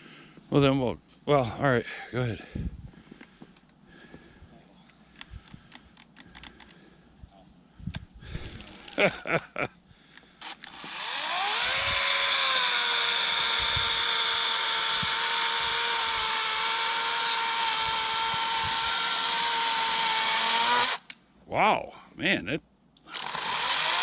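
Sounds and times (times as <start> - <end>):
chainsaw trigger pulses: 10.2 - 21.2, 23.0 - 24.0
electric chainsaw cutting: 10.4 - 21.1, 23.1 - 24.0.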